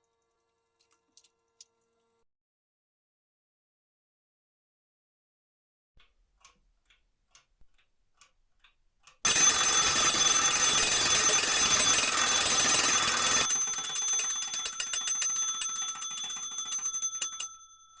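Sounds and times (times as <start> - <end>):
alarm clock ticking: 9.2 - 18.0
alarm clock bell ringing: 9.3 - 18.0.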